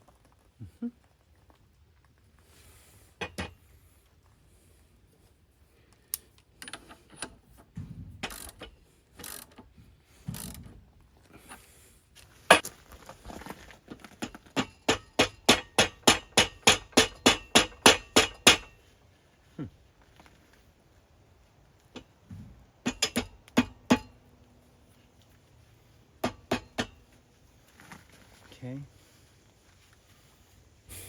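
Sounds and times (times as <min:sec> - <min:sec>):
tools knocking on metal: 0:22.8 - 0:24.1, 0:26.2 - 0:27.0.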